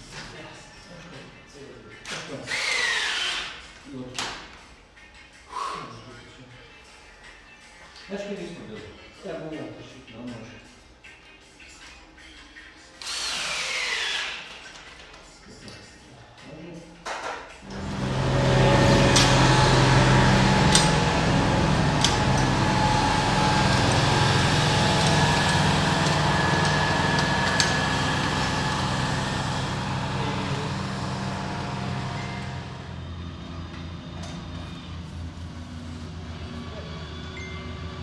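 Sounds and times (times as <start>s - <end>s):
large vehicle engine running: 17.6s - 38.0s.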